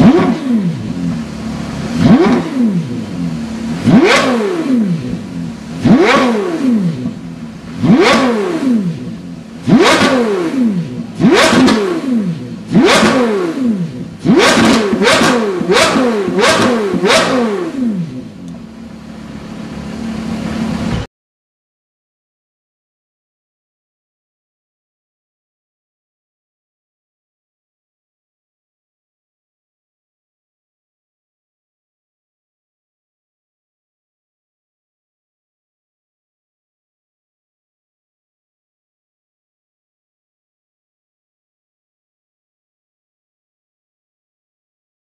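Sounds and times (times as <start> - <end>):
sports car engine revving: 0.0 - 21.1.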